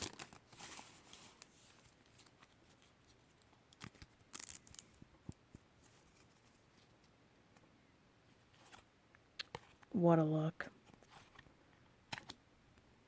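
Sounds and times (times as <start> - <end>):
trading cards and wrapper rustling: 0.0 - 7.1.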